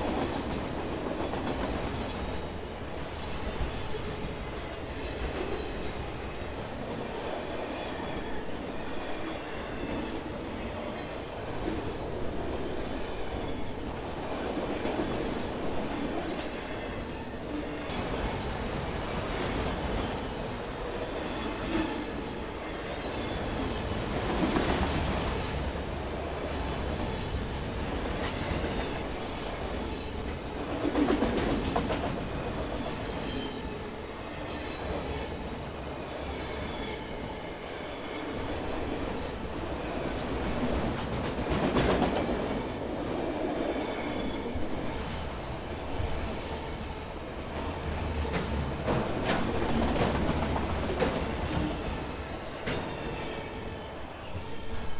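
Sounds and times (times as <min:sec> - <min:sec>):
train wheels clattering over rail joints: 0:26.6 - 0:33.8, 0:47.8 - 0:53.4.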